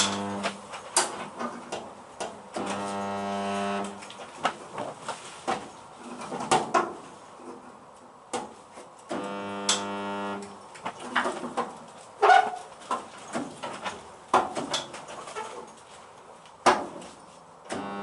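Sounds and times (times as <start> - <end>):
electric welder humming: 0.0 - 0.6, 2.6 - 4.1, 9.1 - 10.5, 17.7 - 18.0.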